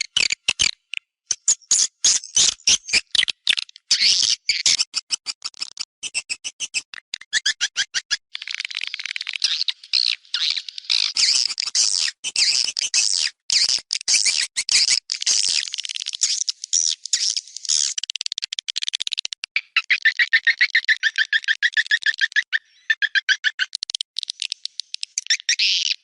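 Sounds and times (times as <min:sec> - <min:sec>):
swiftlets twittering and chirping: 0:01.3 - 0:26.0.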